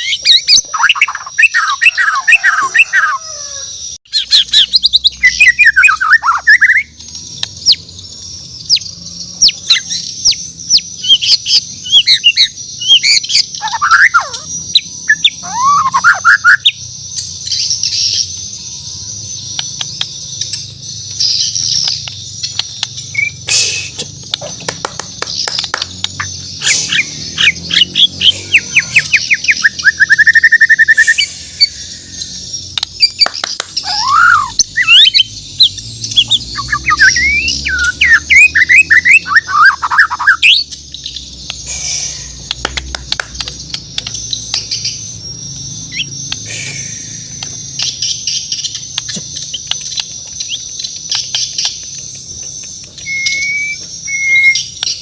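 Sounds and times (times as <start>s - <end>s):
bird singing whistled phrases: 0.0s - 7.0s, 9.4s - 16.7s, 26.6s - 40.7s, 52.8s - 55.0s
background bird chirping: 0.0s - 55.0s
bird clicks and chirps: 19.4s - 55.0s.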